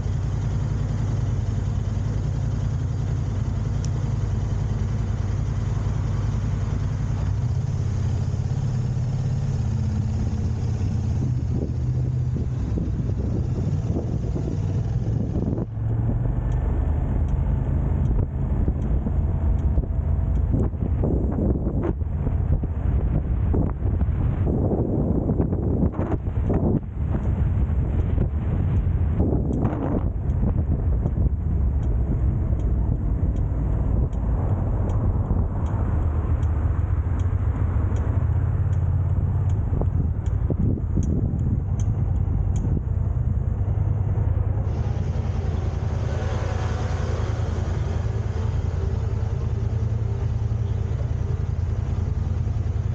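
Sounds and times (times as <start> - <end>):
engine rumbling: 0.0 - 52.9
faint high ticks: 14.8 - 20.7, 27.2 - 44.0
rushing noise: 43.0 - 52.9.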